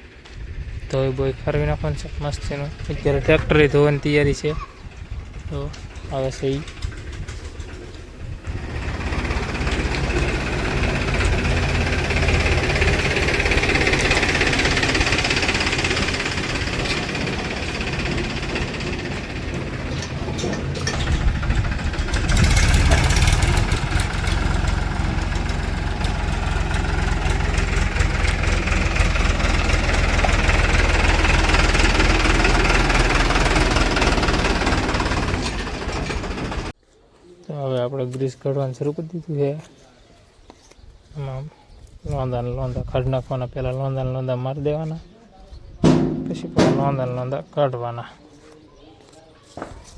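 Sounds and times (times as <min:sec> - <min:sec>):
diesel engine rumbling: 0:00.0 - 0:36.8, 0:45.8 - 0:47.7.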